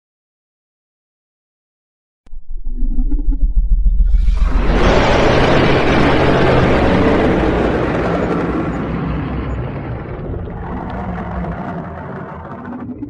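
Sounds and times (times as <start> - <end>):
dragon roar: 4.2 - 12.9.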